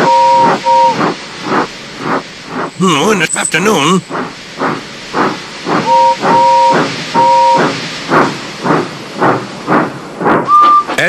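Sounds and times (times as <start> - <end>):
steam whistle blasts: 0.0 - 1.0, 5.9 - 7.7
steam locomotive chuffing: 0.0 - 11.0.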